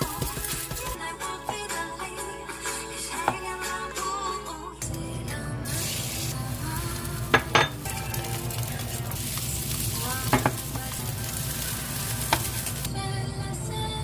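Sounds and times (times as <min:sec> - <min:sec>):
background music: 0:00.0 - 0:14.0
food sizzling in a frying pan: 0:05.7 - 0:12.9.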